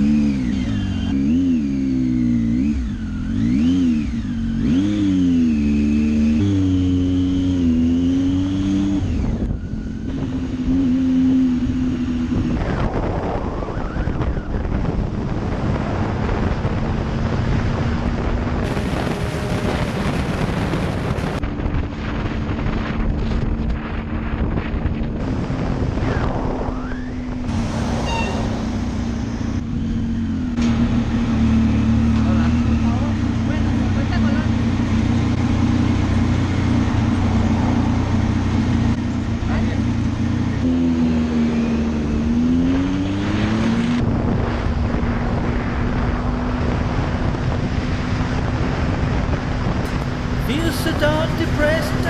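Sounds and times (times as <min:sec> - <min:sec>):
motorcycle engine running: 0:00.0 - 0:42.4, 0:44.0 - 0:52.0
wind buffeting microphone: 0:09.0 - 0:30.3, 0:43.5 - 0:52.0.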